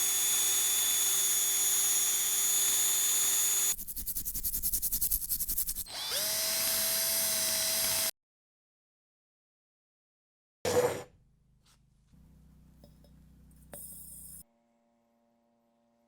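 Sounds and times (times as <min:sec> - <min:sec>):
small electric power tool whining: 0:00.0 - 0:03.8, 0:05.8 - 0:08.1.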